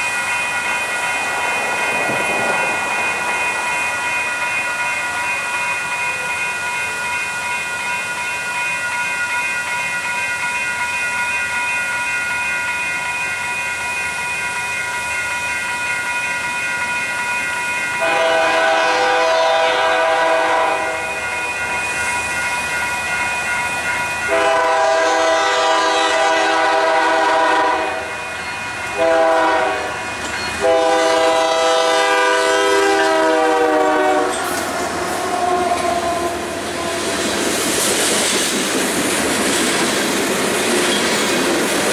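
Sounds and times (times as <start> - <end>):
locomotive air horn: 18.0 - 21.2, 24.3 - 28.2, 29.0 - 30.0, 30.6 - 34.4.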